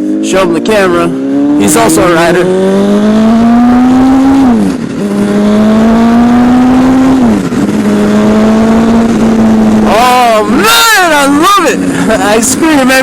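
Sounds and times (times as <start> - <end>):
motorcycle engine accelerating: 0.0 - 13.0
wind on microphone: 1.1 - 10.4.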